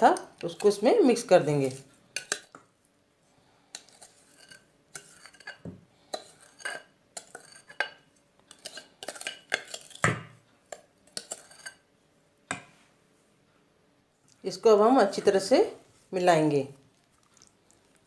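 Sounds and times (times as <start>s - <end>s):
spoon scraping a bowl: 0.0s - 2.6s, 3.7s - 11.9s.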